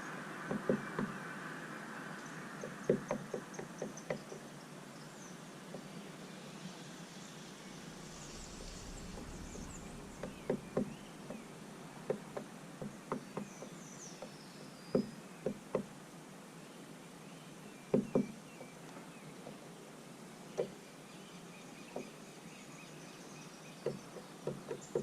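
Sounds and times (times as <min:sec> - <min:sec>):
faint bird chirps: 0:02.2 - 0:11.6
outdoor hiss: 0:05.0 - 0:12.7.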